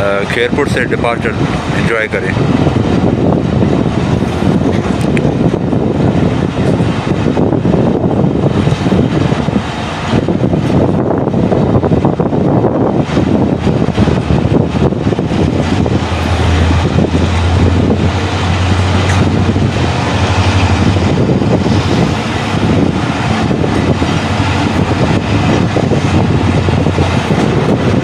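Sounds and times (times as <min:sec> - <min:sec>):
diesel locomotive engine drone: 0:00.0 - 0:28.0
train coaches rumbling: 0:00.0 - 0:28.0.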